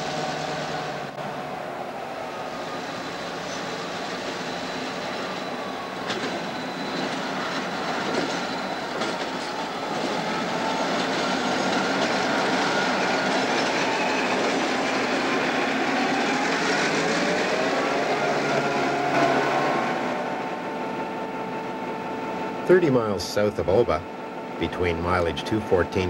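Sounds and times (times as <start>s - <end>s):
diesel locomotive engines: 0.0s - 26.0s
train wheels clattering over rails: 6.0s - 17.7s.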